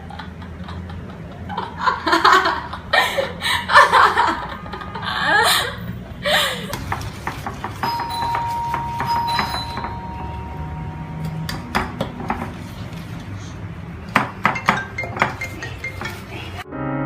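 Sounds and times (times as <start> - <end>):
girls laughing: 0.0 - 7.0.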